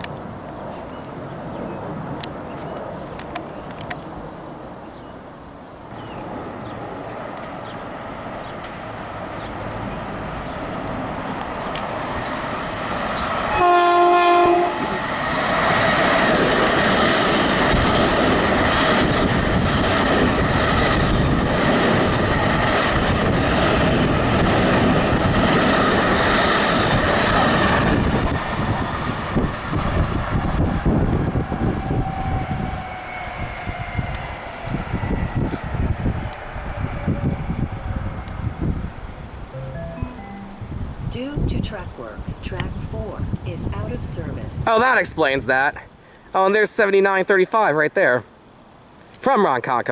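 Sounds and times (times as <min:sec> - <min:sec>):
train wheel and rail noise: 0:05.5 - 0:45.1
train horn blast: 0:12.9 - 0:15.0.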